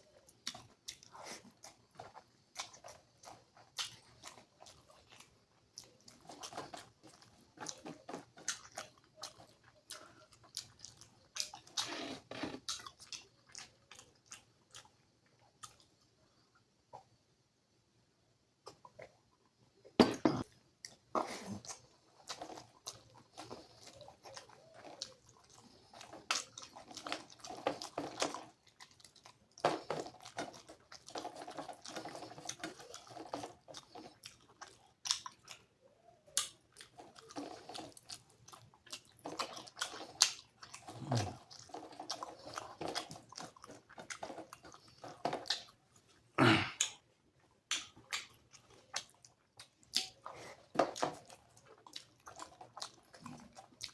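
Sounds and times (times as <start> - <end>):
chewing and mouth sounds: 0.0 - 17.1, 20.1 - 53.9
wet smacking: 47.7 - 51.3.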